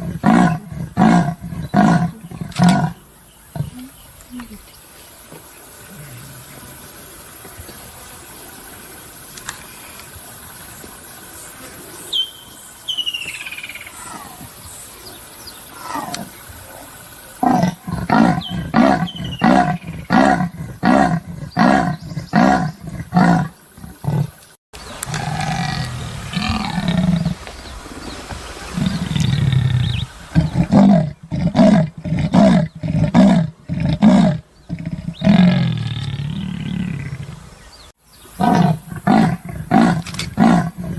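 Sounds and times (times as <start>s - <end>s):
faint hiss: 1.4s - 18.6s, 24.4s - 31.4s.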